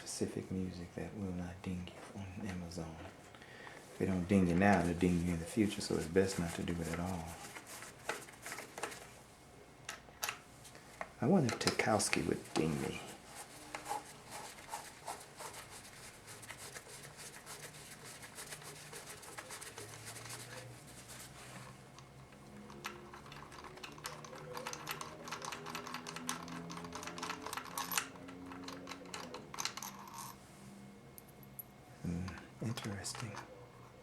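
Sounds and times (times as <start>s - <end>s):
small metal parts clicking and rattling: 22.0s - 30.4s.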